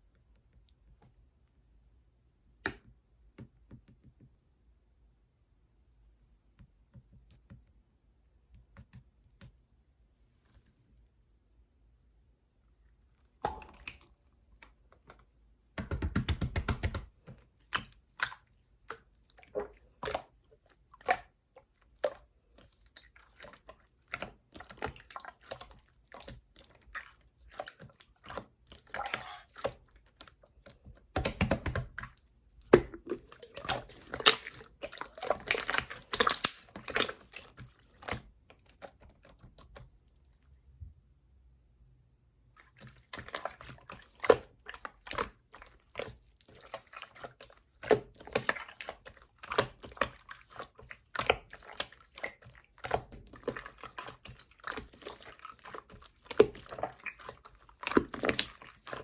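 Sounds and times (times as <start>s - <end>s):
slime squeezed with sticky pops: 32.7s - 37.4s.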